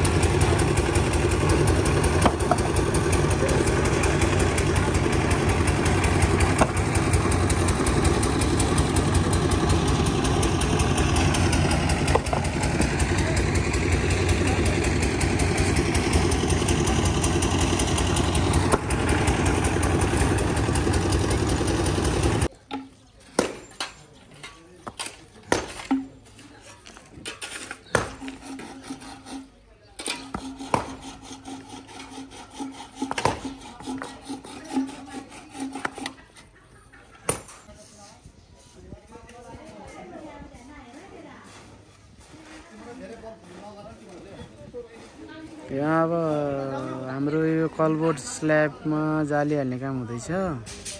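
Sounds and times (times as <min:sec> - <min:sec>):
engine idling: 0:00.0 - 0:22.5
tool rasping back and forth: 0:27.2 - 0:36.5.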